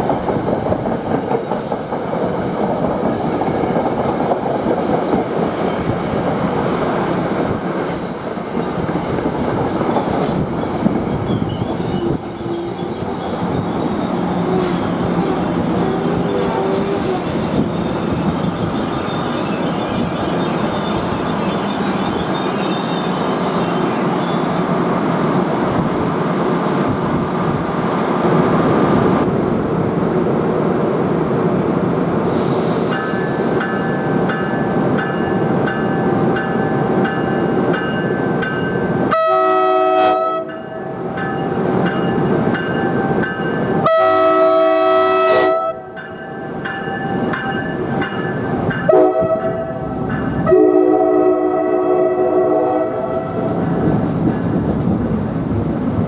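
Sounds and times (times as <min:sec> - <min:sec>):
train wheels rumbling on rail: 0:00.0 - 0:56.0
train air horn: 0:39.1 - 0:40.6, 0:43.8 - 0:45.9, 0:48.9 - 0:49.8, 0:50.4 - 0:53.6.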